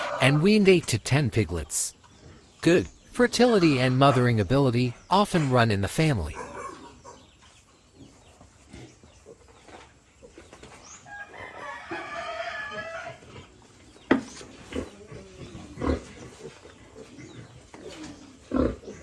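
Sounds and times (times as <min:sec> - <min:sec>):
rooster crowing: 0:11.1 - 0:13.3.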